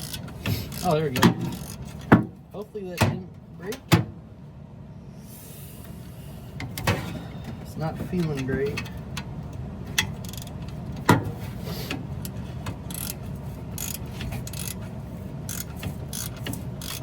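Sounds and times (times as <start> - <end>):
hand ratchet clicking: 0.0 - 2.1, 10.2 - 10.6, 12.2 - 13.2, 13.8 - 14.8, 15.5 - 17.0.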